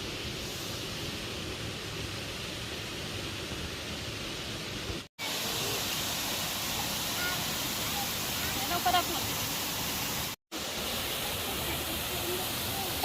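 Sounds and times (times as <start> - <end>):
waterfall rushing: 3.3 - 13.0.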